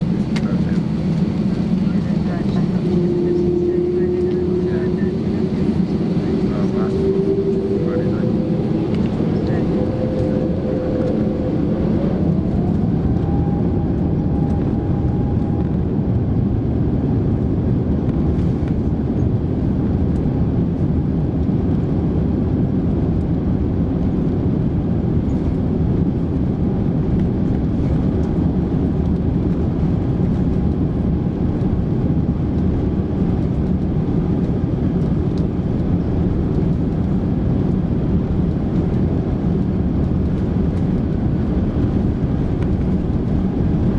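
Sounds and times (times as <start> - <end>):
jet engines roaring: 0.0 - 20.2, 27.6 - 43.9
engine tone rising in pitch: 1.4 - 15.8.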